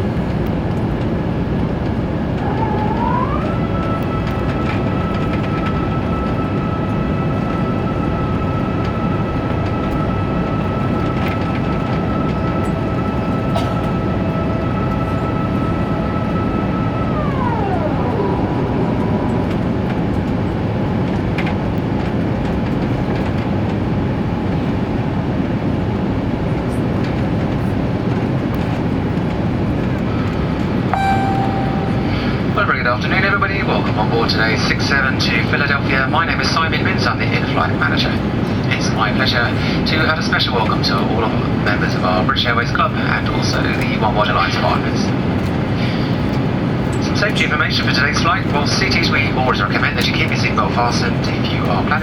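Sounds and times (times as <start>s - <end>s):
high engine whine: 0.0s - 52.0s
jet engine roar in cabin: 0.0s - 52.0s.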